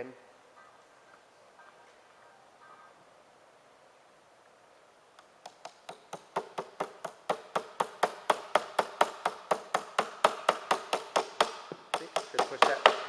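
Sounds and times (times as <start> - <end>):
rapid hammer taps on metal pin: 5.2 - 13.0.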